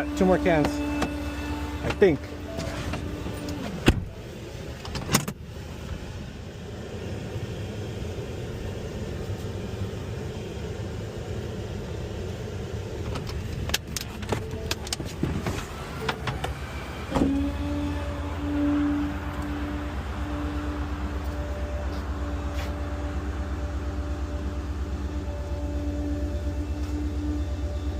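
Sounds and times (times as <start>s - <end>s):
higher even hum: 0.0s - 4.8s, 5.5s - 27.9s
garbage truck engine running: 12.8s - 27.9s.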